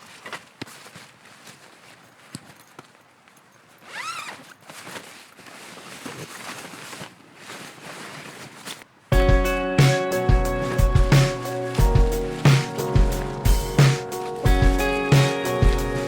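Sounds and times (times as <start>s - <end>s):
rustling handling noises: 0.0s - 16.0s
music: 9.1s - 16.0s.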